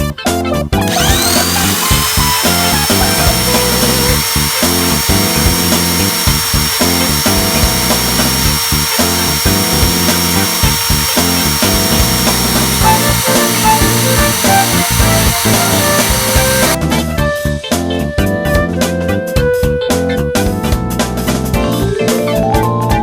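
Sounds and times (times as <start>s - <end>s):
high-pitched electric motor whine: 0.9s - 16.8s.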